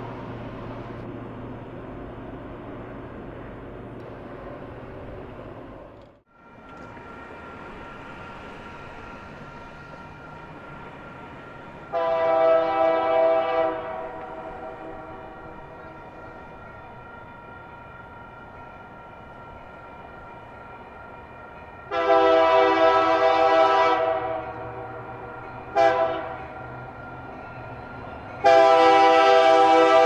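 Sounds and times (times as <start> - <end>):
locomotive air horn blasts: 11.9 - 15.4, 21.9 - 25.0, 25.7 - 26.4, 28.4 - 30.0.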